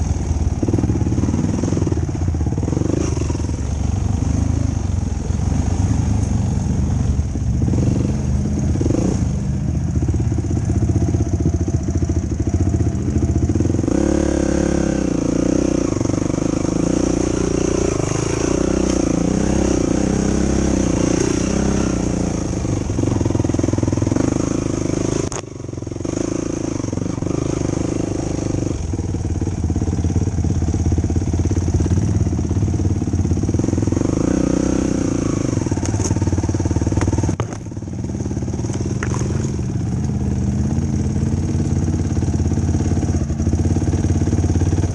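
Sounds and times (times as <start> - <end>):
atv engine revving: 0.0 - 44.9.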